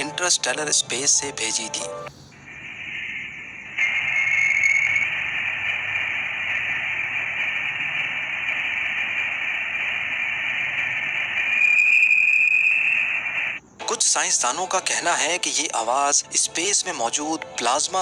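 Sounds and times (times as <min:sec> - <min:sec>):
thin high tone: 0:00.0 - 0:05.3, 0:11.0 - 0:13.6
steady hiss: 0:00.0 - 0:18.0.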